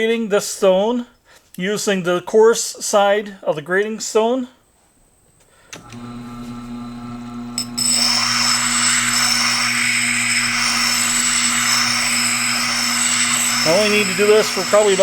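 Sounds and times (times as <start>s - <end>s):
grinder motor humming: 5.8s - 15.0s
stone scraping grinding wheel: 6.0s - 15.0s.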